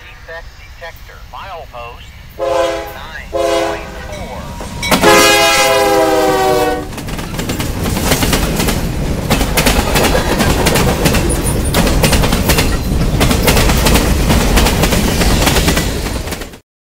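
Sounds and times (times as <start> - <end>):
freight train rumbling: 0.0 - 16.6
wheels clicking over rail joints: 6.9 - 16.5.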